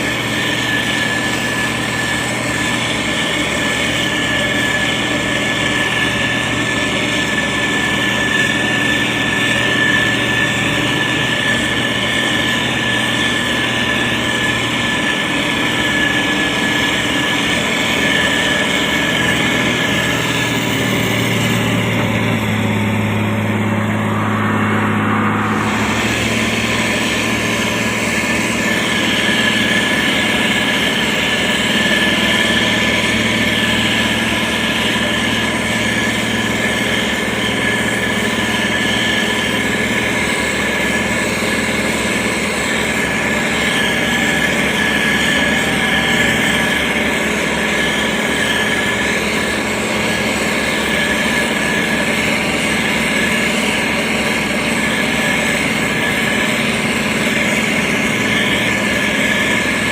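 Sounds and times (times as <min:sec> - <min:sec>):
constant high whine: 0:00.0 - 0:59.9
diesel engine running: 0:00.0 - 0:59.9.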